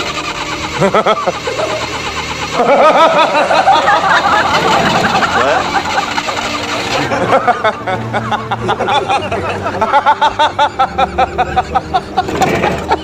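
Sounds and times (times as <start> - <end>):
engine cranking on starter: 0.0 - 7.9, 12.0 - 13.0.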